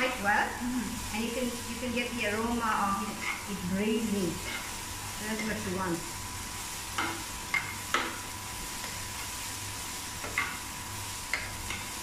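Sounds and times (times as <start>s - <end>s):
chickpeas and onion sizzling in oil: 0.0s - 12.0s
metal spoon scraping a pan: 3.0s - 3.6s, 4.3s - 5.7s.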